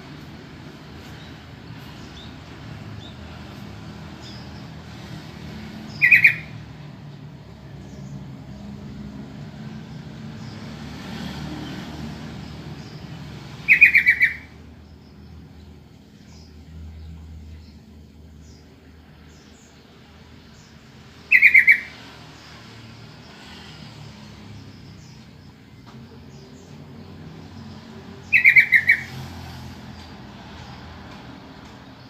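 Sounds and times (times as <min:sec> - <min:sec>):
bird calling quick notes: 0:13.7 - 0:14.5.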